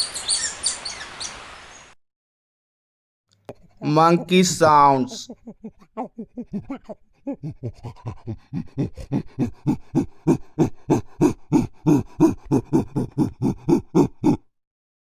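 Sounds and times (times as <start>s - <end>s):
monkey panting hoots: 3.4s - 14.5s.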